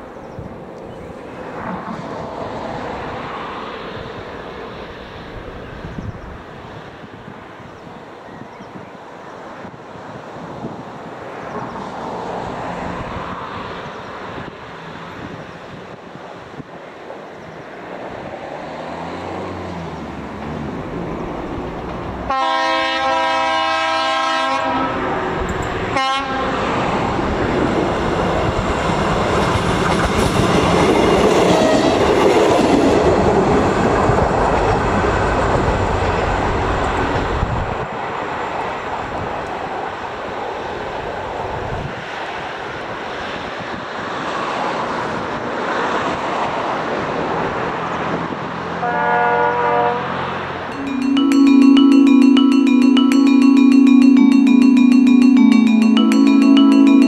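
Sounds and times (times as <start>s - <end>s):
railcar running past: 16.8s - 43.4s
train horn blasts: 22.3s - 25.1s, 26.0s - 26.7s, 48.8s - 50.1s.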